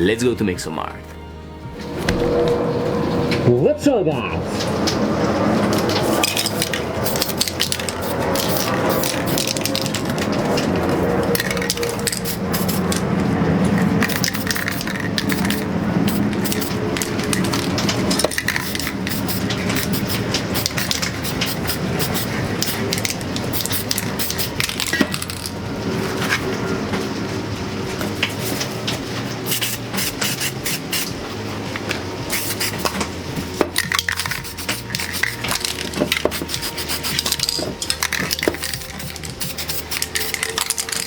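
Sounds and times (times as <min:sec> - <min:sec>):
metallic can rattles: 0:04.5 - 0:27.2, 0:31.7 - 0:41.0
spray paint cans hissing: 0:04.6 - 0:27.1, 0:27.9 - 0:41.0.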